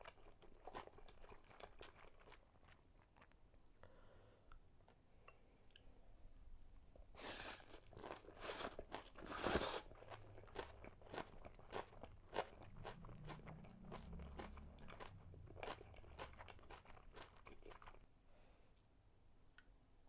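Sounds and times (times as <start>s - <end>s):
chewing with small clicks: 0.0s - 3.5s, 10.0s - 18.1s.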